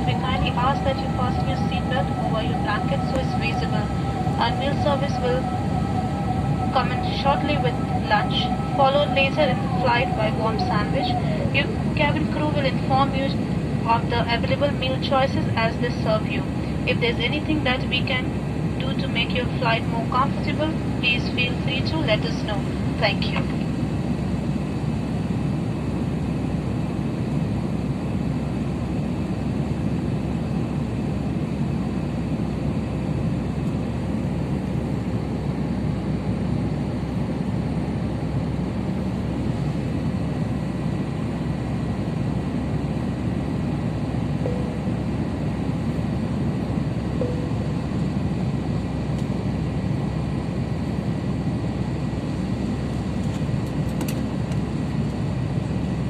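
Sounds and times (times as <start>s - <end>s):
airplane cabin engine rumble: 0.0s - 56.0s
faint steady whine: 0.0s - 56.0s.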